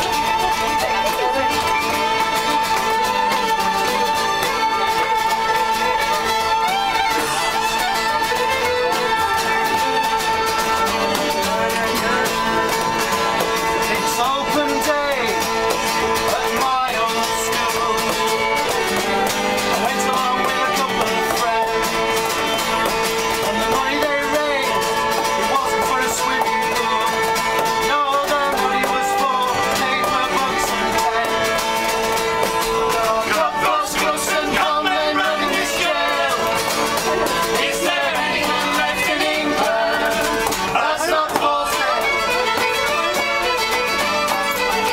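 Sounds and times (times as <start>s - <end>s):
folk music on acoustic instruments: 0.0s - 44.9s.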